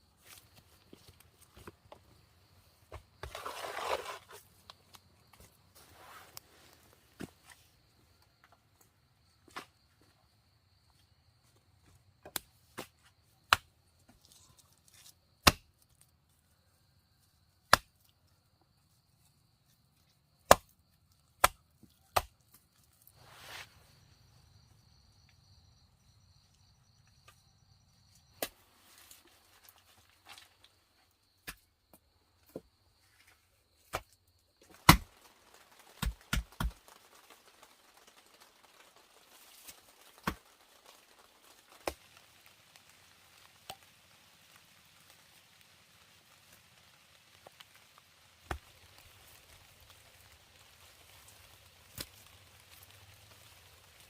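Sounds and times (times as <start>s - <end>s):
axe chopping wood: 13.5s - 13.7s, 15.4s - 15.7s, 17.7s - 17.9s, 20.5s - 20.7s, 21.4s - 21.6s, 31.4s - 31.6s, 33.9s - 34.2s, 34.8s - 35.1s, 36.0s - 36.7s.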